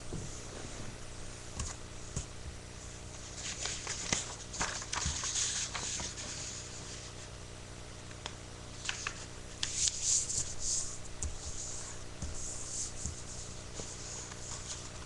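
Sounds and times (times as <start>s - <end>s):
paper rustling and crinkling: 3.1s - 7.3s, 8.8s - 15.0s.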